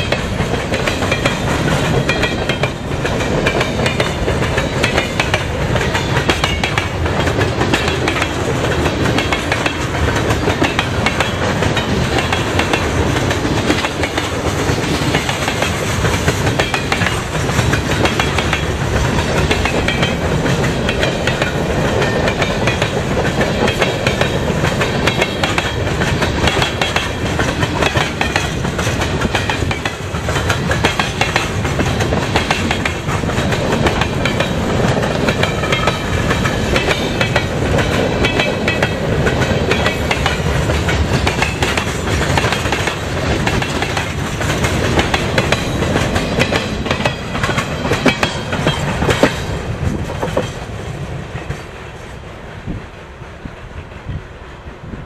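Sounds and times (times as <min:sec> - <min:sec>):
train wheels clattering over rail joints: 0:00.0 - 0:52.8.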